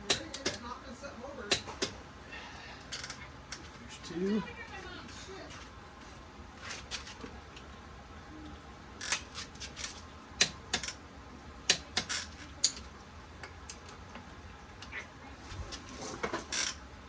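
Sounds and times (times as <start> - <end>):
metallic clicks and clinks of tools: 2.8 - 3.8.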